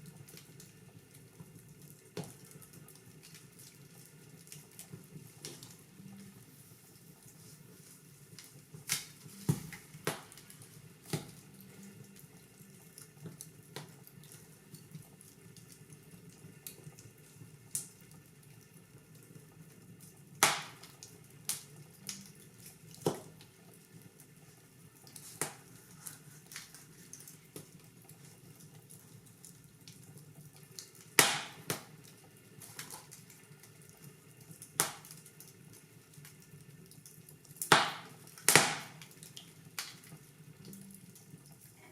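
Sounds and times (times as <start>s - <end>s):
wood fire crackling and popping: 0.0s - 41.9s.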